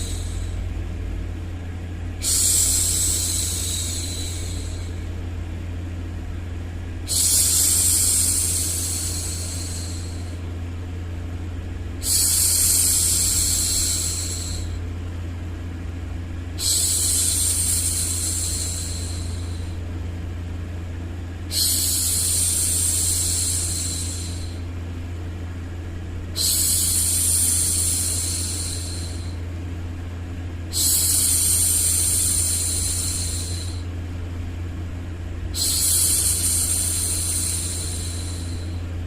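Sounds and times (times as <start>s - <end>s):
low rumbling noise: 0.0s - 39.0s.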